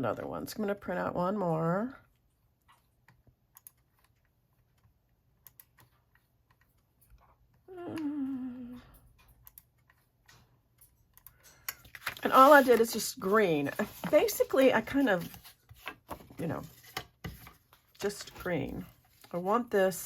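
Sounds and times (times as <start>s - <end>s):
keyboard and mouse clicks: 2.6s - 8.1s, 9.1s - 10.4s
person humming: 7.7s - 9.0s.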